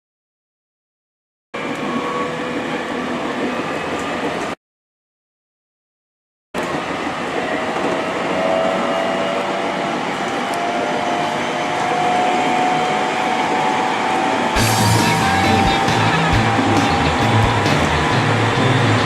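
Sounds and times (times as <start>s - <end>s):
train rumbling: 6.6s - 19.0s
music: 14.6s - 19.0s.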